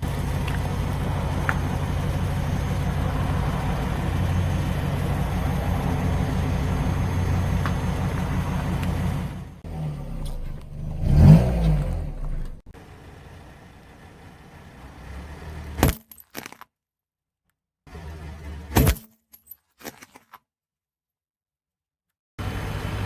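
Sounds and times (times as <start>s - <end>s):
car engine running: 0.0s - 16.2s, 17.9s - 19.0s, 22.4s - 23.0s
objects cracking under a tyre: 15.7s - 16.8s, 18.8s - 20.5s.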